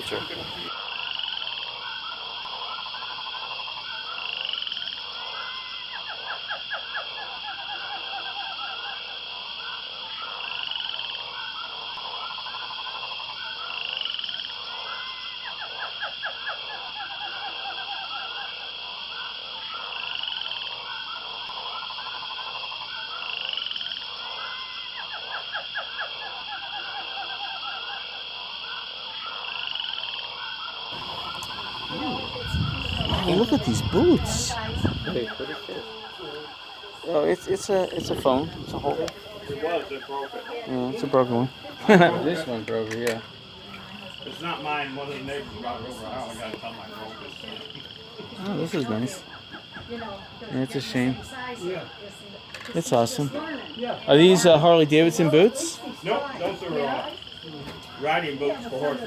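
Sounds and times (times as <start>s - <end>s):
animal croaks and chirps: 0.0s - 0.7s, 1.6s - 54.6s.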